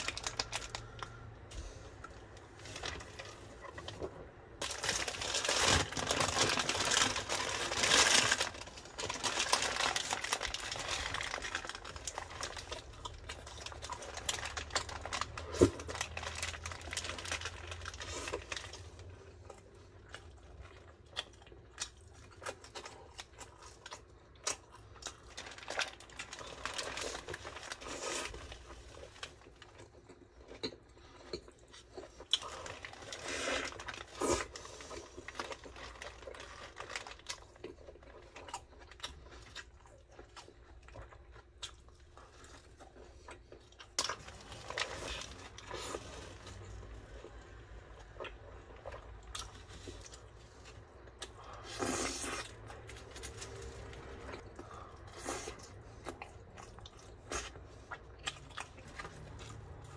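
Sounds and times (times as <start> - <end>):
paper wrapper crinkling: 0.0 - 1.2, 4.6 - 18.8, 25.3 - 28.5
biting and chewing: 48.0 - 59.9.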